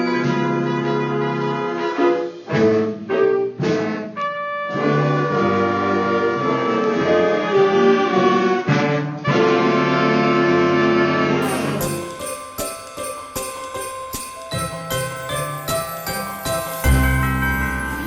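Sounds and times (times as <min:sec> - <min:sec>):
brass and saxophones playing chords: 0:00.0 - 0:12.9.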